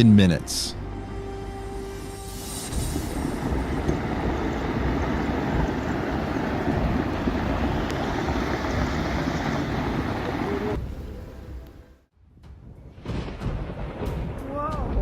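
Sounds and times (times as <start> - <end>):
rough rushing rumble: 0.8 - 15.0
wind buffeting microphone: 2.7 - 11.7.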